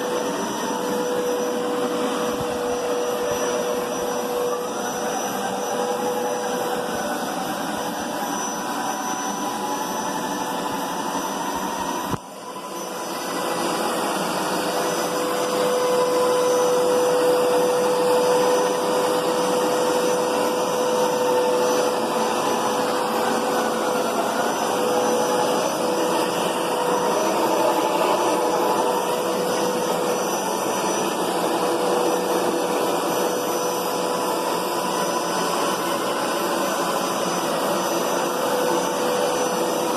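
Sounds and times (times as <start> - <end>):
carpet cleaner motor hum: 0.0 - 39.9.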